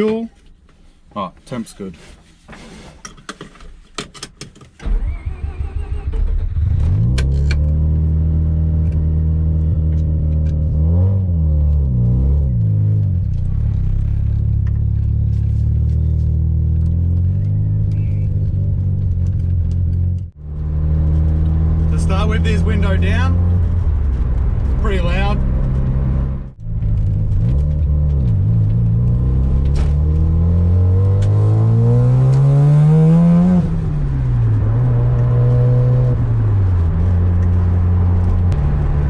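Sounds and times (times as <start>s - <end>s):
rotary engine starting and idling: 4.8s - 7.8s
engine revving: 4.8s - 39.0s.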